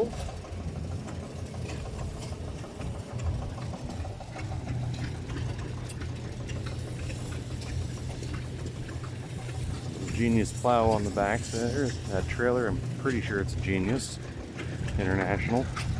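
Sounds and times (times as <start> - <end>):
engine idling low hum: 0.0 - 15.9
faint irregular clicks: 0.2 - 15.9.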